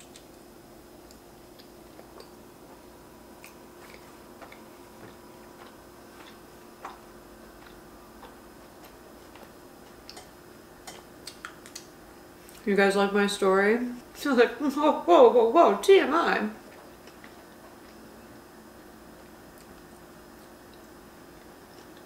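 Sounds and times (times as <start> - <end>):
chewing with wet mouth clicks: 0.0 - 0.4, 1.0 - 12.6, 16.6 - 22.0
faint steady hum: 0.0 - 22.0.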